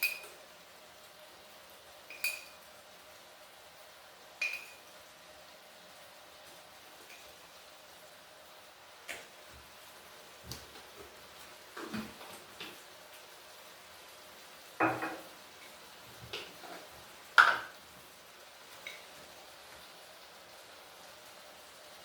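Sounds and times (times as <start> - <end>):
dishes and cutlery clinking: 0.0 - 0.4, 2.1 - 2.6, 4.4 - 4.9.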